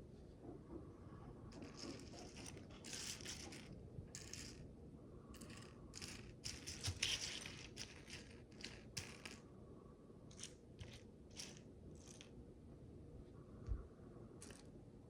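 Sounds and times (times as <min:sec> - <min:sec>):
plastic blocks clicking and scraping: 0:01.6 - 0:04.6, 0:05.4 - 0:09.4, 0:10.3 - 0:12.3.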